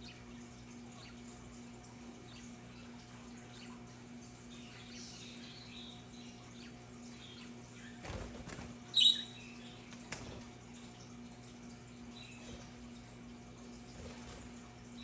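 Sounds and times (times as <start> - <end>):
budgerigars chattering: 9.0 - 9.6.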